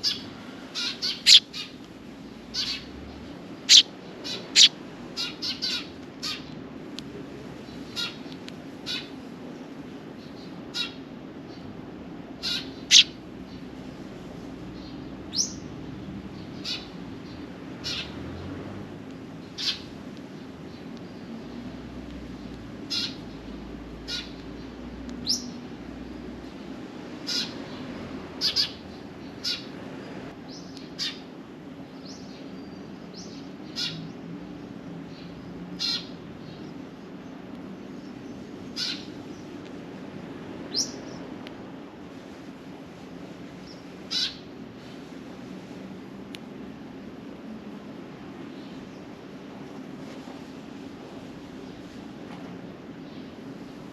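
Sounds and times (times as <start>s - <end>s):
sparrows chirping: 0.0s - 6.6s, 7.6s - 11.7s, 12.3s - 18.4s, 19.1s - 26.4s, 27.2s - 29.8s, 30.4s - 31.3s, 31.9s - 39.5s, 40.7s - 41.3s, 43.6s - 45.0s.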